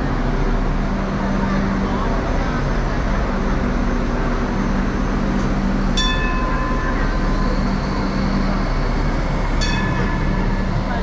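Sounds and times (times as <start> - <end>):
train rumbling past: 0.0 - 11.0
metallic ring: 6.0 - 7.1, 9.6 - 10.8.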